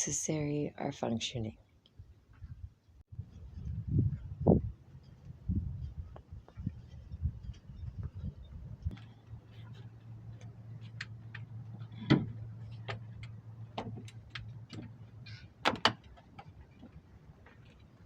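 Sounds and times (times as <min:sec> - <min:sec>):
low steady hum: 0:03.2 - 0:15.6.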